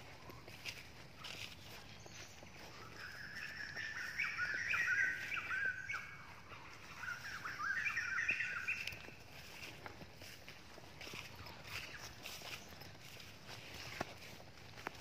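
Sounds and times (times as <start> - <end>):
bird chirping: 0.0 - 10.4.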